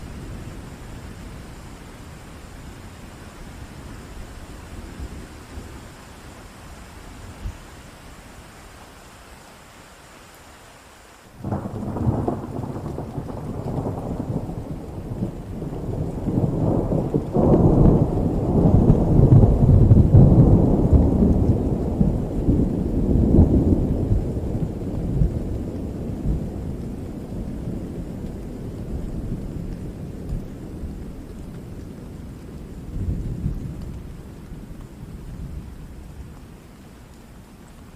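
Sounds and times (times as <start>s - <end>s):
steady rain: 0.0s - 37.9s
thunder rolling: 11.4s - 31.1s.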